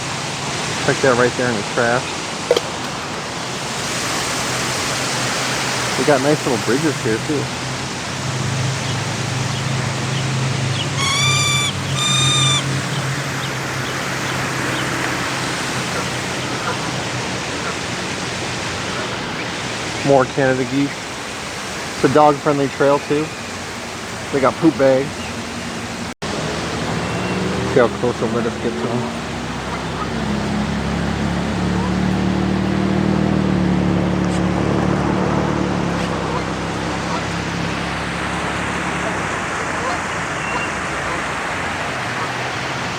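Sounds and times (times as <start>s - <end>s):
motor engine humming: 0.0s - 42.9s
rushing water: 0.0s - 42.9s
short bird calls: 8.9s - 17.0s, 39.1s - 41.3s.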